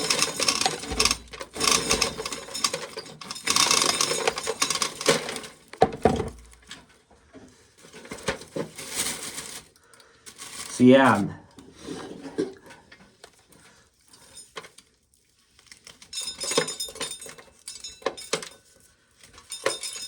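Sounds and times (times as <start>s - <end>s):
dry corn rattling by hand: 0.0s - 5.7s.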